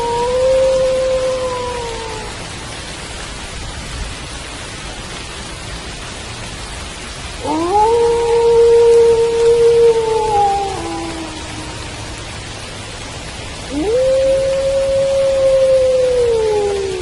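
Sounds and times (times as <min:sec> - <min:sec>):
wolf howling: 0:00.0 - 0:02.4, 0:07.4 - 0:12.5, 0:13.7 - 0:17.0
rain falling: 0:00.0 - 0:17.0.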